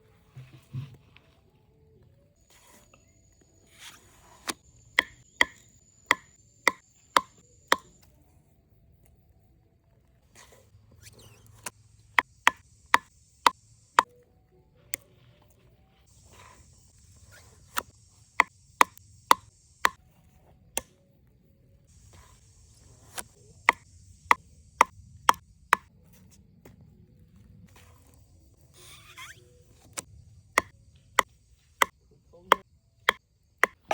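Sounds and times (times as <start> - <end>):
sharp ringing knocks: 5.0 - 7.9.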